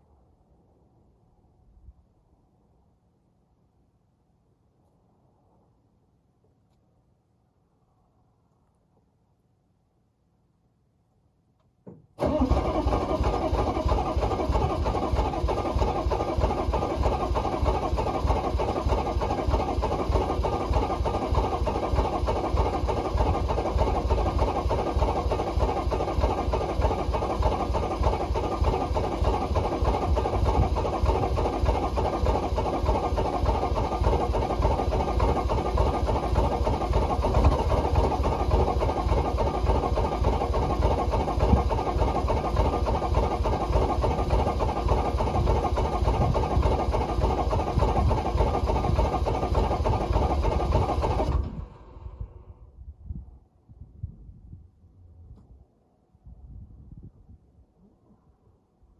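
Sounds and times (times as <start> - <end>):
diesel engine idling: 12.2 - 52.3.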